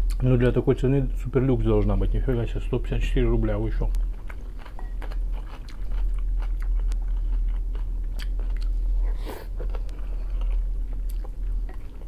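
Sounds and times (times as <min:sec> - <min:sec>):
man chewing with wet mouth clicks: 0:00.0 - 0:00.2, 0:03.9 - 0:08.9, 0:09.6 - 0:12.0
steady low hum: 0:00.0 - 0:12.0.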